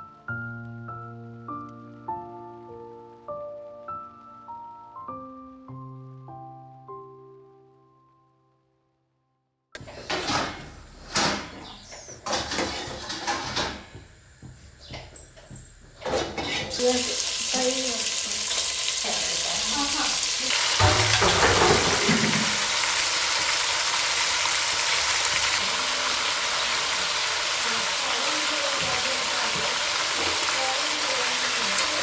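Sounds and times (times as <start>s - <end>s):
food sizzling in hot oil: 12.5s - 32.0s.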